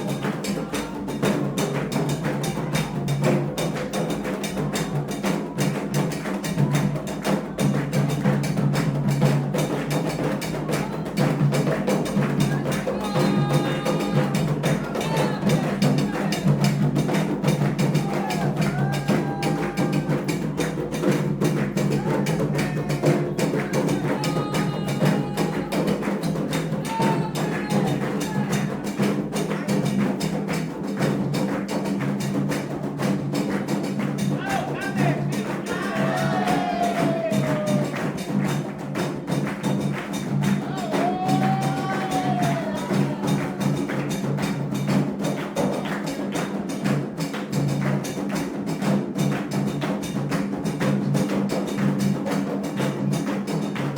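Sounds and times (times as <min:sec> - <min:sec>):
fast hand drumming: 0:00.0 - 0:53.9
held voices: 0:12.4 - 0:16.6, 0:21.9 - 0:28.9, 0:34.3 - 0:38.4, 0:40.6 - 0:44.0.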